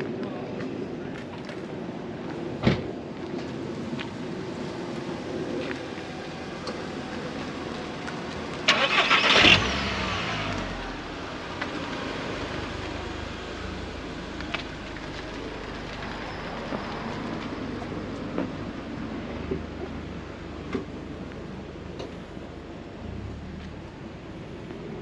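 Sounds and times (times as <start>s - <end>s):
engine running low rumble: 0.0s - 25.0s
engine cranking and starting: 8.6s - 10.8s.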